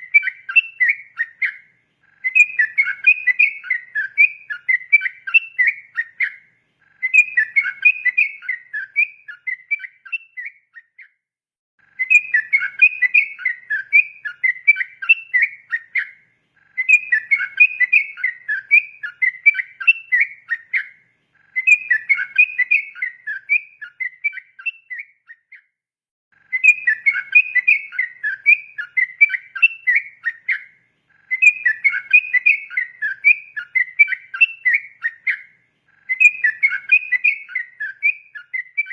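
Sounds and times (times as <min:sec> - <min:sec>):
bulbul singing chattering whistles: 0:00.0 - 0:11.2, 0:11.9 - 0:25.7, 0:26.4 - 0:38.9.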